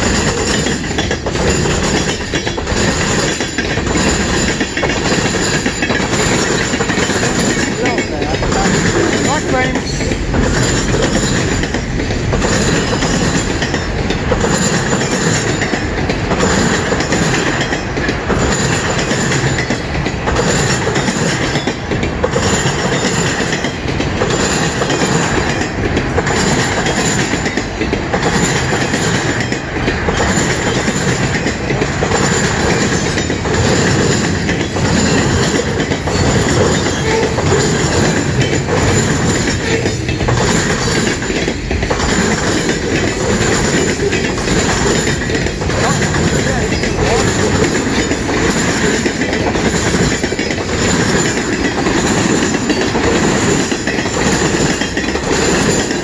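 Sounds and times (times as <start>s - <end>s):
steel wheels rolling on rail: 0.0s - 56.0s
wheels clicking over rail joints: 0.0s - 56.0s.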